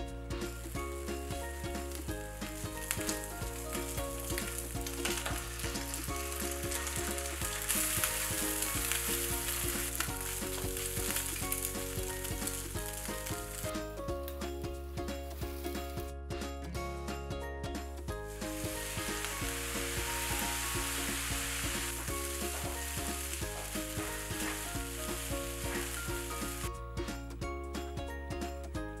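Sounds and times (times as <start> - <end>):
food sizzling in a frying pan: 0.7 - 13.7, 18.3 - 26.7.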